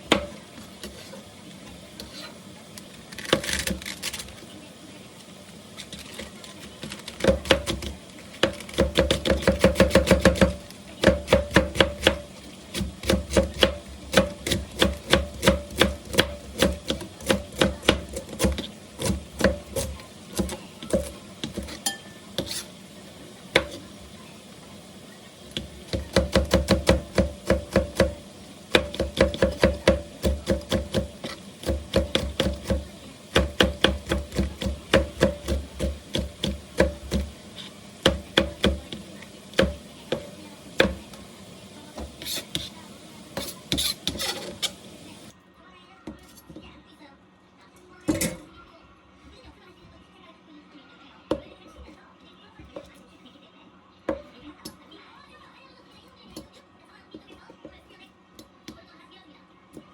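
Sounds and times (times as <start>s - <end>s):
knife chopping on cutting board: 7.2s - 21.8s, 23.5s - 23.8s, 25.6s - 41.1s.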